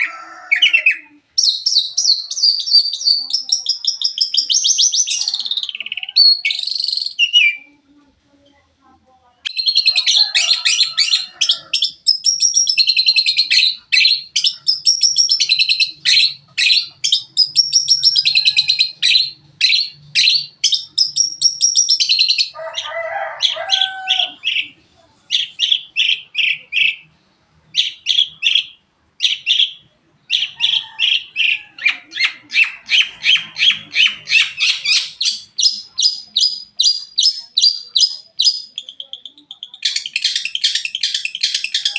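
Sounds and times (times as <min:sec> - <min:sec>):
bird chirping and trilling: 0:00.0 - 0:07.8, 0:09.5 - 0:41.9.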